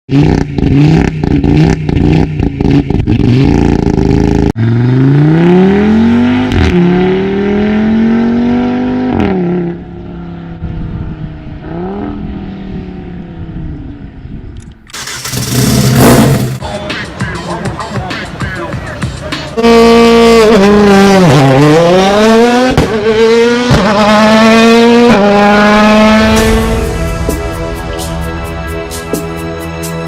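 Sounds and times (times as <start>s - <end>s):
car engine accelerating: 0.1s - 14.3s, 15.0s - 30.0s
loud exhaust burst: 15.0s - 16.6s, 24.7s - 30.0s.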